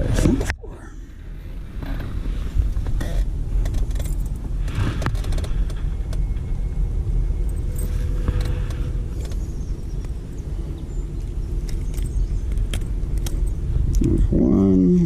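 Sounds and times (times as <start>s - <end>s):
wind buffeting microphone: 1.2s - 15.0s
handling clicks and metallic rattles: 2.8s - 6.4s, 7.4s - 14.2s.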